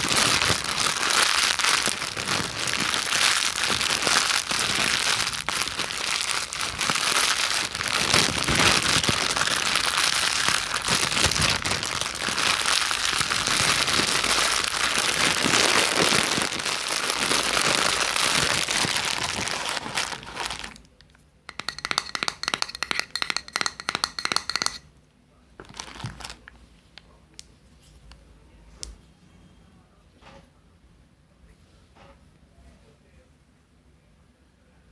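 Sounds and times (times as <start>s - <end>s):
crinkling and crackling: 0.0s - 23.8s, 25.6s - 29.0s.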